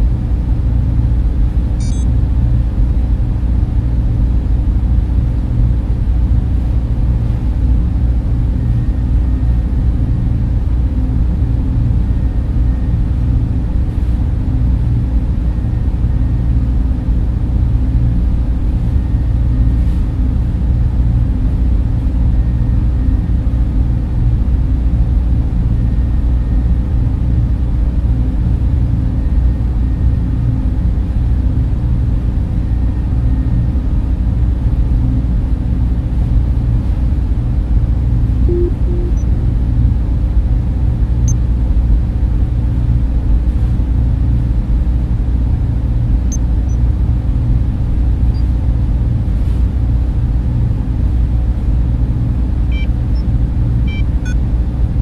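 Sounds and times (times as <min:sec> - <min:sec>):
server fans humming: 0:00.0 - 0:55.0
faint high tone: 0:01.8 - 0:02.0, 0:38.4 - 0:39.4.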